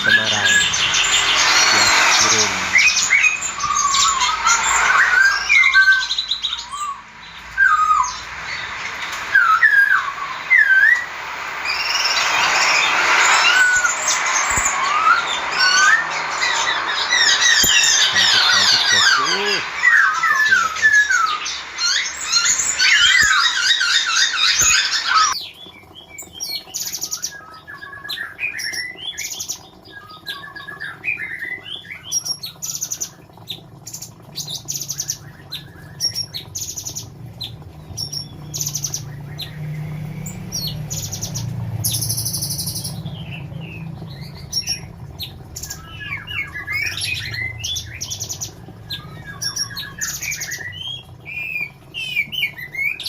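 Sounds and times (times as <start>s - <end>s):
sharp high bird calls: 0.0s - 25.4s
bird singing chirps and warbles: 0.0s - 53.0s.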